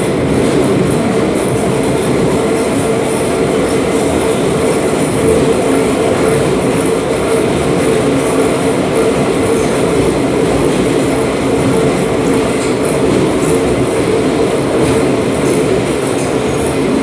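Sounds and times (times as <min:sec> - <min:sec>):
train running noise from inside: 0:00.0 - 0:17.0.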